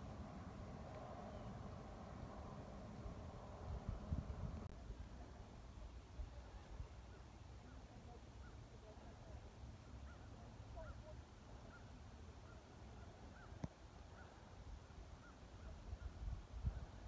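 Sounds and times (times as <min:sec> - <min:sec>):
low wind rumble: 0:00.0 - 0:05.4.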